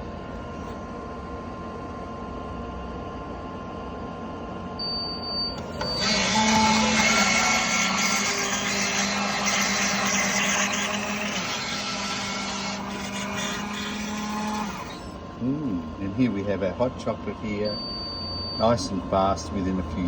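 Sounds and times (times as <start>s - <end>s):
vending machine hum: 0.0s - 20.0s
mixer motor whirring: 4.8s - 16.6s.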